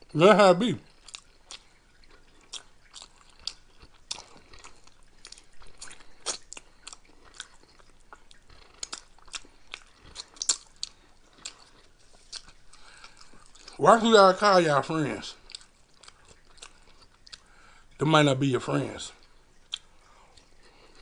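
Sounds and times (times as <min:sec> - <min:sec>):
crunchy snack chewing: 0:00.8 - 0:13.8, 0:15.4 - 0:17.5.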